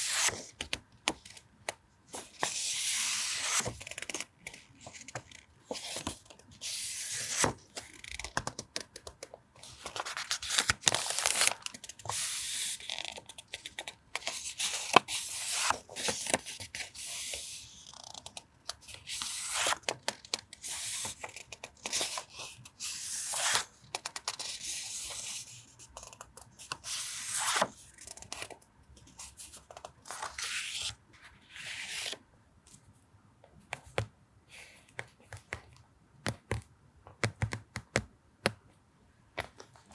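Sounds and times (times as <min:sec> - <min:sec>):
paper rustling: 0:09.2 - 0:16.5.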